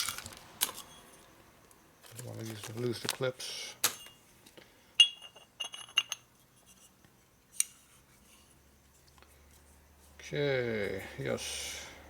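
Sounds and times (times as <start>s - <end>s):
small steel parts clinking: 3.8s - 4.2s, 5.0s - 6.3s.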